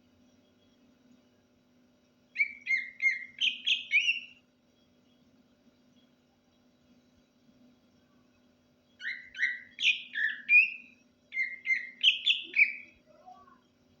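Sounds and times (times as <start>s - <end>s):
faint steady hum: 0.0s - 14.0s
bird singing whistled notes: 2.3s - 4.4s, 9.0s - 13.2s.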